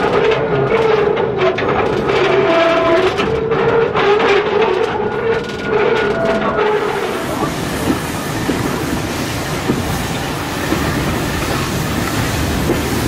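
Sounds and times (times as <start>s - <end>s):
train wheels rumbling on rails: 0.0s - 13.0s
wheels clicking over rail joints: 0.0s - 13.0s.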